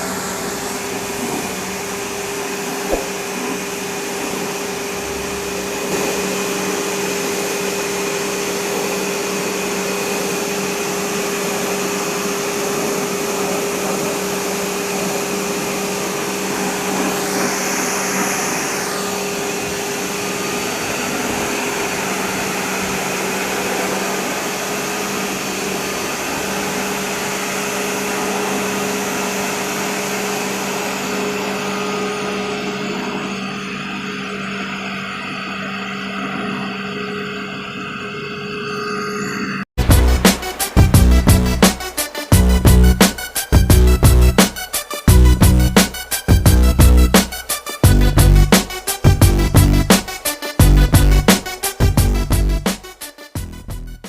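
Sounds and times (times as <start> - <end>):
sharp click: 2.9 - 3.2.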